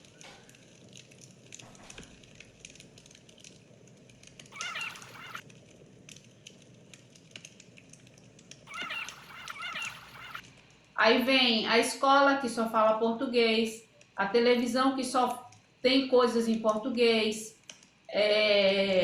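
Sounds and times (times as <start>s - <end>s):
bird calling: 4.5s - 5.4s, 8.7s - 10.4s.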